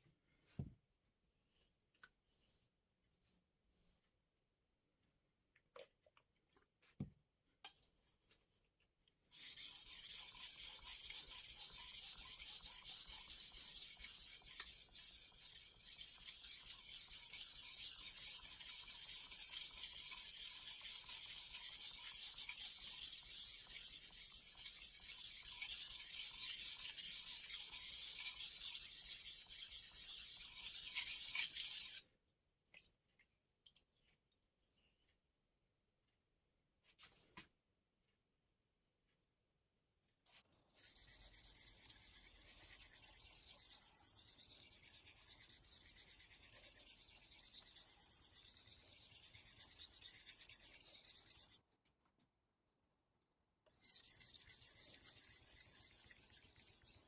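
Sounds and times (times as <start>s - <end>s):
knife scraping on whetstone: 9.4s - 32.0s, 40.8s - 51.6s, 53.7s - 57.0s.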